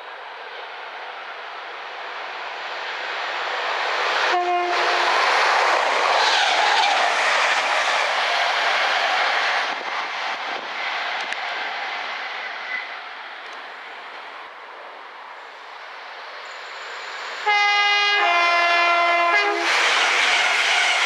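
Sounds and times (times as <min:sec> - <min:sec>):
train wheels rushing on rails: 0:00.0 - 0:21.0
train horn blast: 0:04.3 - 0:05.2, 0:17.4 - 0:21.0.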